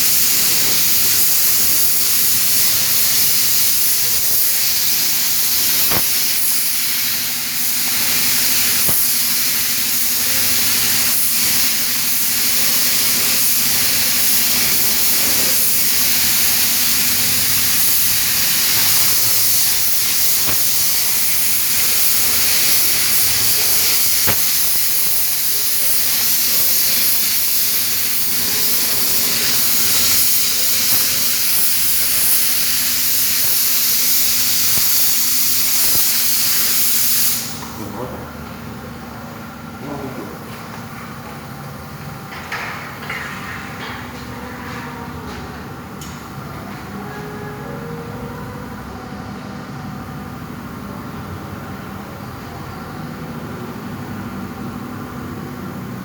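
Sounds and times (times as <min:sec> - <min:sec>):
paint spray gun hissing: 0:00.0 - 0:37.8.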